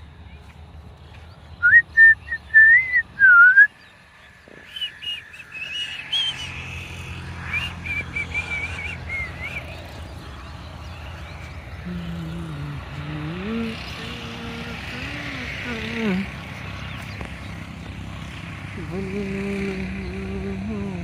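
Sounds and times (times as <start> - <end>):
person whistling: 1.6 - 3.7.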